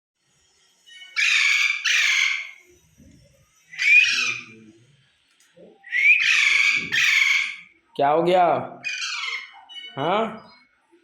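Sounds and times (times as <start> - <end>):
parrot squawking: 1.2 - 2.7, 3.7 - 4.6, 5.9 - 7.8, 8.8 - 9.7.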